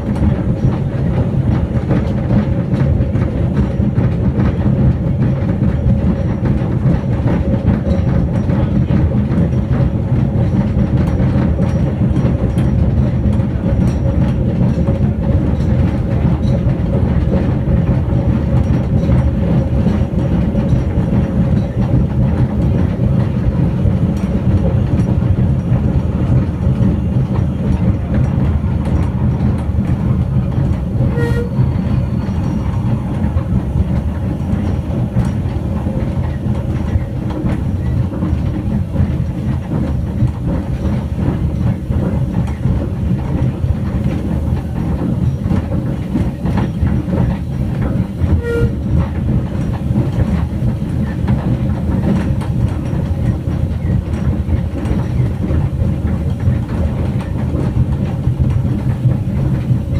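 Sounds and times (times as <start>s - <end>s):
train wheels rumbling on rails: 0.0s - 59.9s
steam whistle toots: 31.1s - 31.8s, 48.4s - 48.8s.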